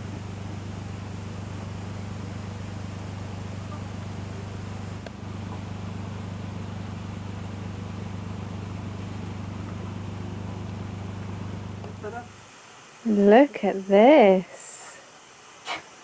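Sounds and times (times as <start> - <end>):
motor humming: 0.0 - 12.5.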